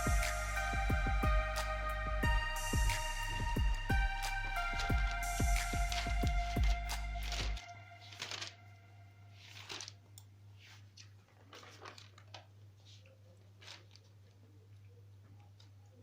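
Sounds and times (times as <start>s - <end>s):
low steady hum: 0.0s - 9.4s
music track: 0.0s - 9.4s
paper rustling: 5.9s - 14.6s.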